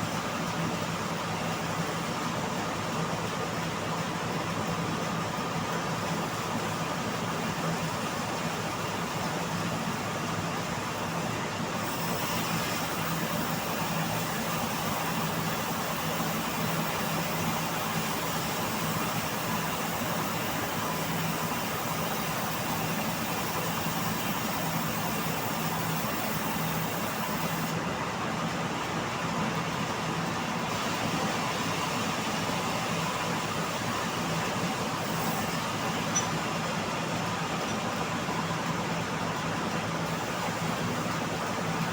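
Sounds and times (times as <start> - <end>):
bandsaw sawmill running: 2.6 - 41.9.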